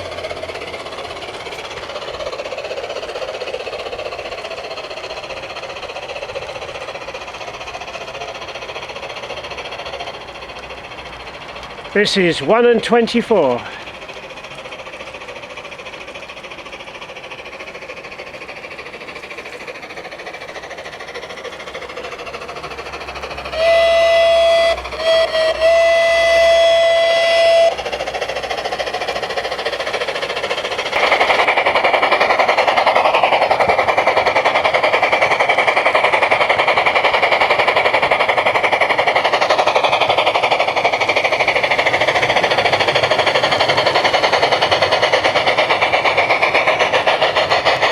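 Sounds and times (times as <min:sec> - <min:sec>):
model locomotive steam chuffing: 0:00.0 - 0:47.9
steam whistle: 0:23.5 - 0:27.8.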